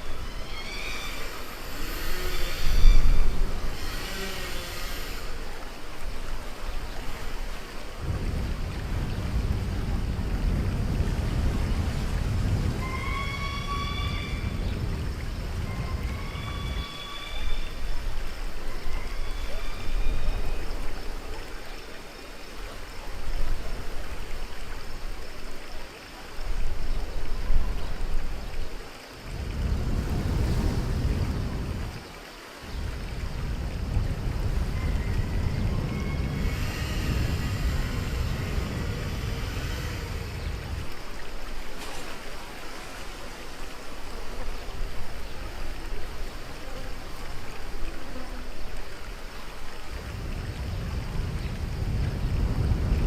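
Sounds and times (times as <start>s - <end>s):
rushing splashing water: 0.0s - 53.0s
heavy low rumble: 29.3s - 32.1s.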